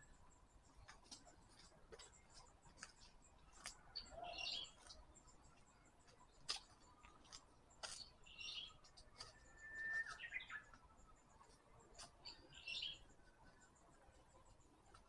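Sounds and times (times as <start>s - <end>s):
songbirds chirping: 0.0s - 15.0s
footsteps on forest path: 0.8s - 10.8s.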